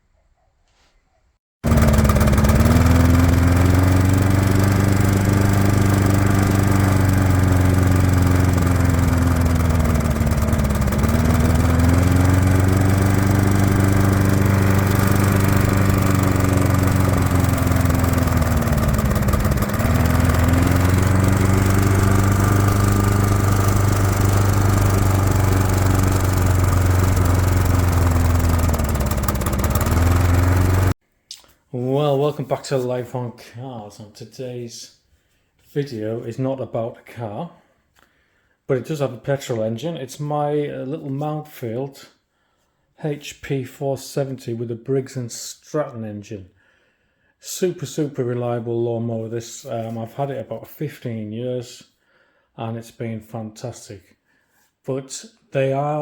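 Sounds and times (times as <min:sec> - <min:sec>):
lawn mower engine hunting: 0:01.6 - 0:31.0.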